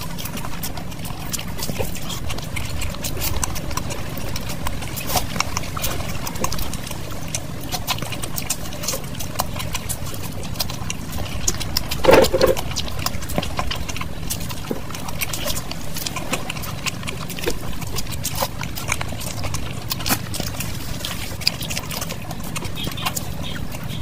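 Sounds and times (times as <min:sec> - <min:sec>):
wet chewing and mouth smacks: 0:00.0 - 0:24.0.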